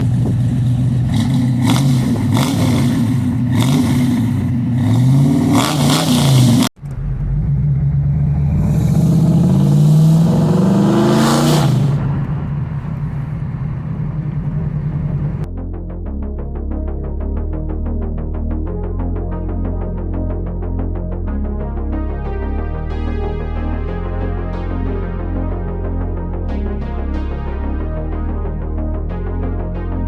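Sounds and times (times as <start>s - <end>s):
car engine revving: 0.0s - 15.5s.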